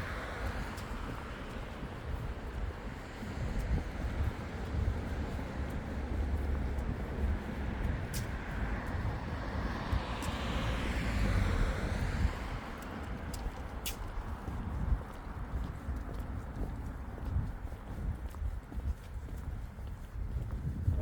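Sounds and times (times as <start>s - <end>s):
car passing by: 7.6s - 14.0s.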